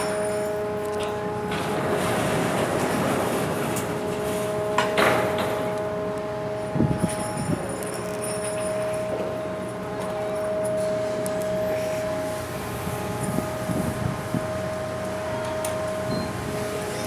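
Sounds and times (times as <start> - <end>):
ferry machinery hum and rumble: 0.0 - 17.0
metallic clanks and knocks: 1.0 - 5.8.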